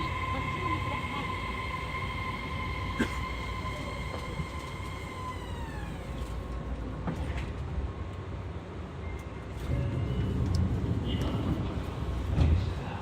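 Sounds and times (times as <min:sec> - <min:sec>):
traction motor whine: 0:00.0 - 0:07.3
low rumble of subway car: 0:00.0 - 0:13.0.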